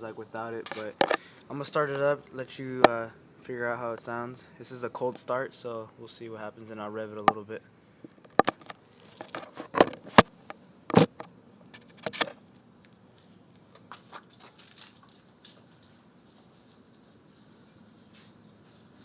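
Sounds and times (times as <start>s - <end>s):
sharp clicks and knocks: 8.1s - 12.4s.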